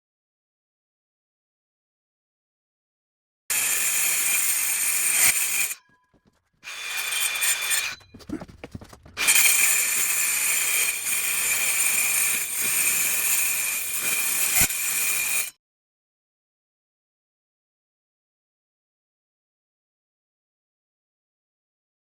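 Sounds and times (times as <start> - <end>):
power tool cutting sheet: 3.5 - 5.9, 6.6 - 8.1, 9.2 - 15.5.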